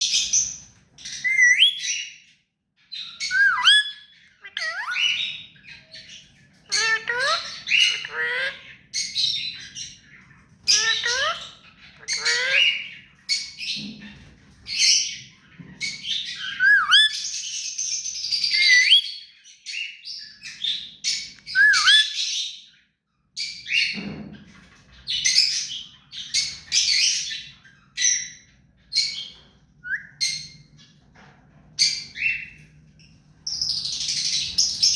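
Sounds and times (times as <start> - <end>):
parakeet squawking: 1.1 - 2.0, 3.2 - 13.1, 16.2 - 17.4, 18.4 - 19.2, 21.3 - 22.4.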